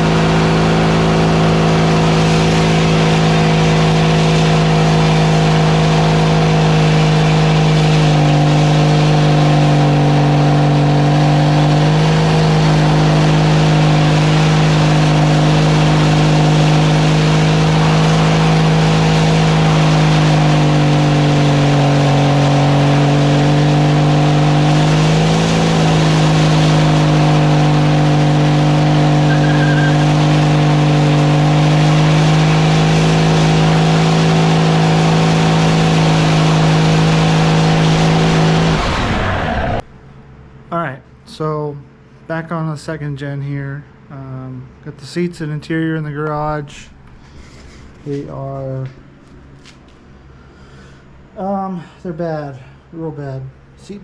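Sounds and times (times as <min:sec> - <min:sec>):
vehicle engine running: 0:00.0 - 0:40.7.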